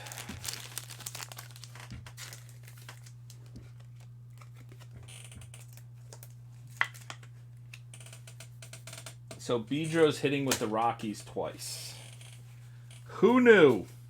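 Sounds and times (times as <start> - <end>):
cards rustling: 0.0 - 4.9
steady low hum: 0.0 - 14.0.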